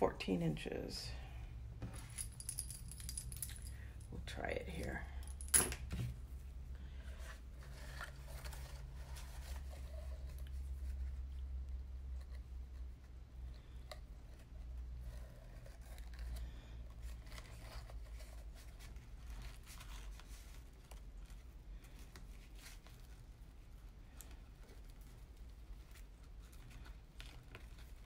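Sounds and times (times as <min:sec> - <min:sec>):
ribbon and paper rustling: 0:07.1 - 0:11.5, 0:14.3 - 0:28.0.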